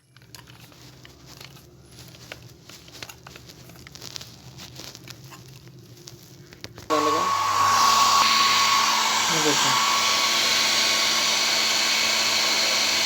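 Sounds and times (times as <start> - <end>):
fan motor whine: 6.8 - 13.0
hair dryer running: 6.9 - 13.0.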